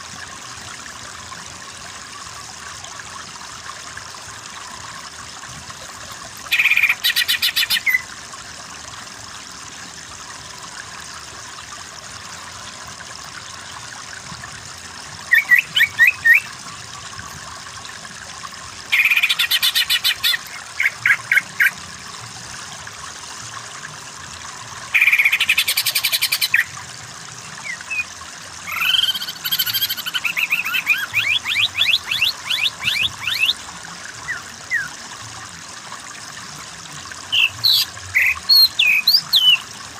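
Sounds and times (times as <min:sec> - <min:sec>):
water trickling: 0:00.0 - 0:39.9
bird singing rapid trills: 0:06.5 - 0:08.0, 0:15.3 - 0:16.5, 0:19.0 - 0:21.7, 0:25.0 - 0:26.7, 0:27.6 - 0:33.6, 0:37.3 - 0:39.7.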